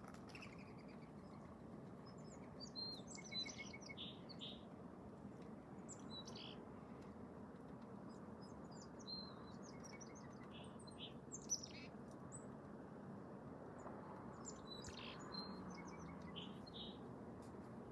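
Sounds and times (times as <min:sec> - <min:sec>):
small birds chirping: 0:00.0 - 0:04.7, 0:05.8 - 0:07.2, 0:08.0 - 0:12.5, 0:14.2 - 0:17.0.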